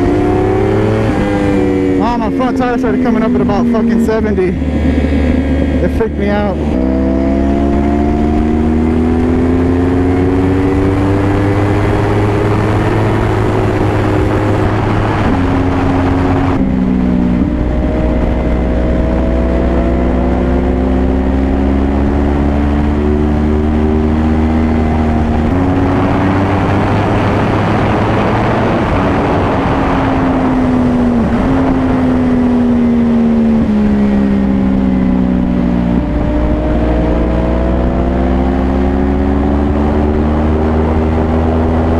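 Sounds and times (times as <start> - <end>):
motorcycle engine under hard riding: 0.0 - 41.9
wind rush: 0.0 - 41.9.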